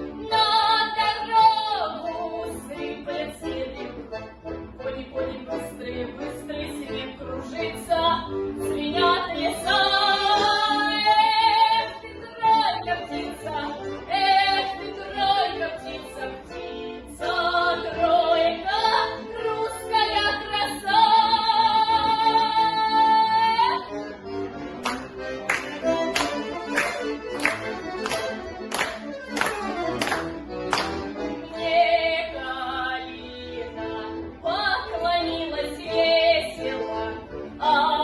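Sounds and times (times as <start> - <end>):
accordion: 0.0 - 38.0
woman singing: 0.3 - 3.8, 4.8 - 23.9, 31.4 - 38.0.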